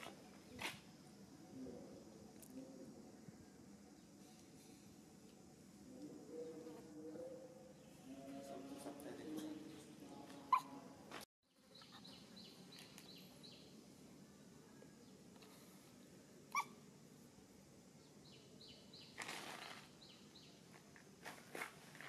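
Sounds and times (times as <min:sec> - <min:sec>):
faint high bird chirps: 0:16.5 - 0:16.8.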